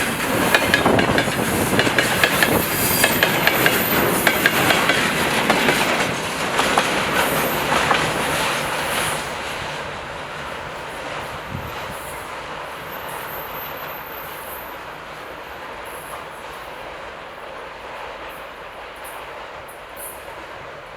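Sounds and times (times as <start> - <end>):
wheels clattering over rail joints: 0.0 - 11.9.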